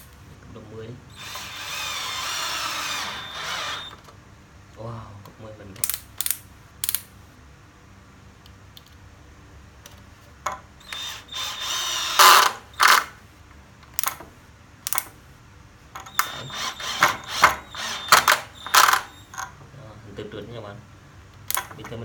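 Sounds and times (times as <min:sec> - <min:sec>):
drill motor whining: 0:01.1 - 0:04.0, 0:10.8 - 0:13.2, 0:16.0 - 0:19.4
drill clutch clicking: 0:01.2 - 0:04.0, 0:10.8 - 0:13.1, 0:16.0 - 0:19.2.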